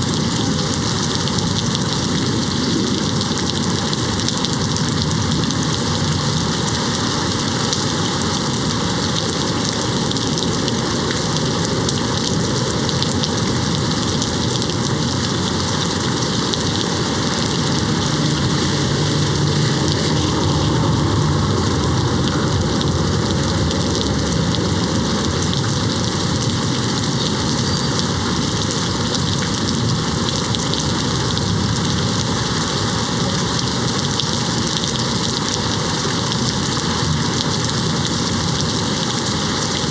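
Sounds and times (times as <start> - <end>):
rain hitting window: 0.0 - 39.9
distant thunder rumble: 17.2 - 27.1.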